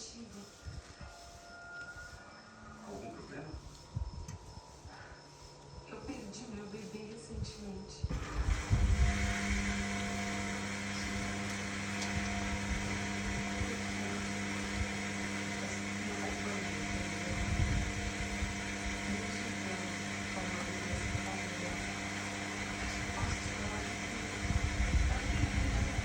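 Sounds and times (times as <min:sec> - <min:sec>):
washing machine motor hum: 0:08.0 - 0:26.0.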